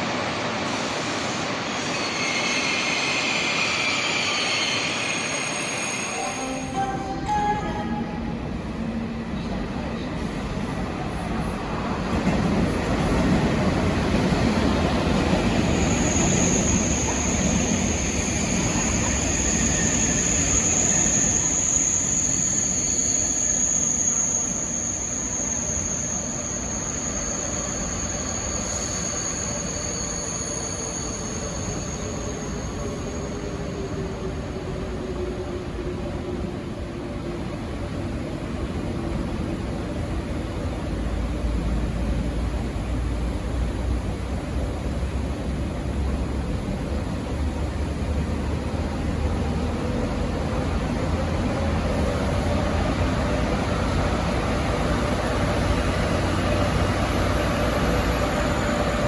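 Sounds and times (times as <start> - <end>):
high squeal: 1.6 - 10.2, 15.5 - 34.2.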